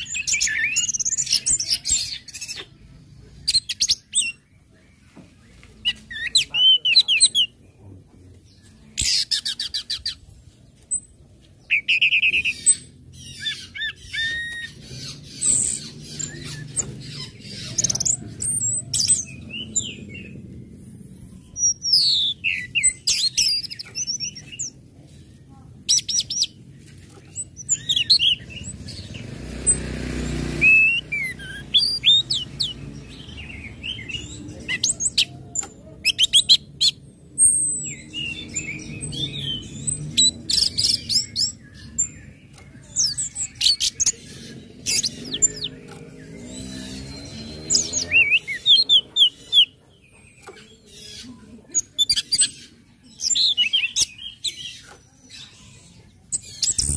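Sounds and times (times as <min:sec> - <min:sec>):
sharp bird chips: 0:08.9 - 0:10.3, 0:25.9 - 0:51.2, 0:51.9 - 0:56.9.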